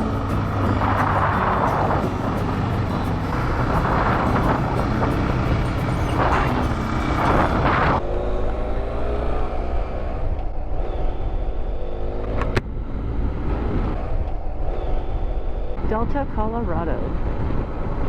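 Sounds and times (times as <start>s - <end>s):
motorcycle engine cruising: 0.0s - 15.6s
road rumble: 0.0s - 18.0s
wind: 0.0s - 18.0s.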